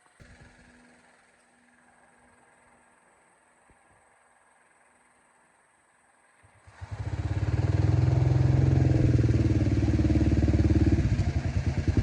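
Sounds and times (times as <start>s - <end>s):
engine starting and running: 0.0s - 3.3s, 6.4s - 12.0s.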